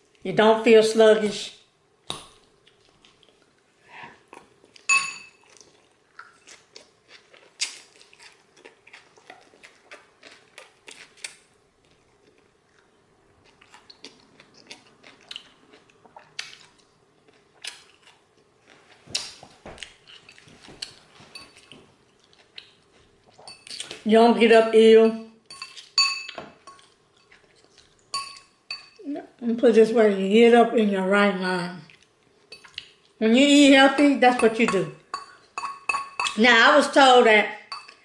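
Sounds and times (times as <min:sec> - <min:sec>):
faint steady hum: 0:00.0 - 0:38.0
chewing and crunching salad: 0:02.4 - 0:24.1, 0:25.4 - 0:29.1, 0:31.8 - 0:36.4
metal fork clinking on bowl: 0:04.9 - 0:05.4, 0:25.5 - 0:26.8, 0:28.1 - 0:29.0, 0:34.3 - 0:36.4, 0:37.7 - 0:38.0.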